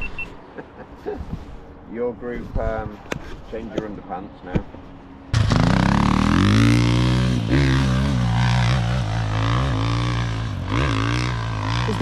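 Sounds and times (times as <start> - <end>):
dirt bike engine revving: 5.3 - 12.0.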